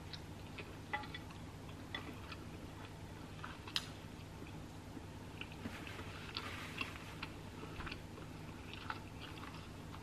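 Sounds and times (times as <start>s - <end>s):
low steady hum: 0.0s - 10.0s
soft mouth clicks chewing: 5.3s - 10.0s.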